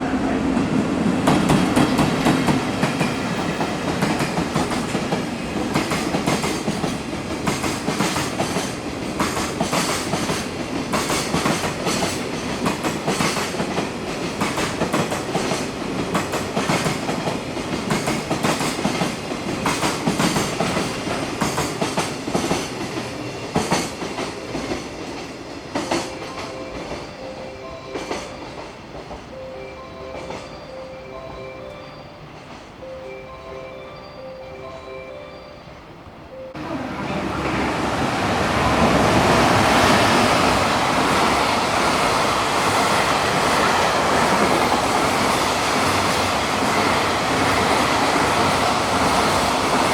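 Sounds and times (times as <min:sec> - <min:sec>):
train wheels clattering over rail joints: 0:01.2 - 0:27.0.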